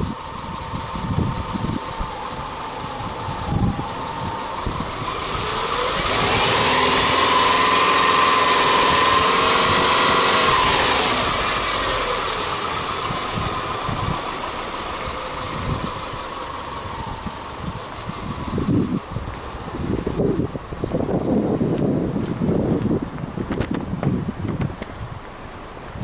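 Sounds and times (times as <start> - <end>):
car engine revving: 1.1 - 20.2.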